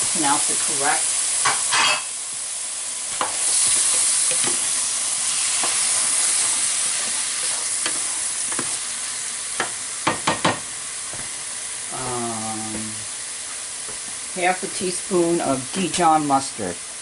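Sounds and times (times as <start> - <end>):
vegetables sizzling in a frying pan: 0.0 - 17.0
utensil knocking against a pan: 9.6 - 10.6.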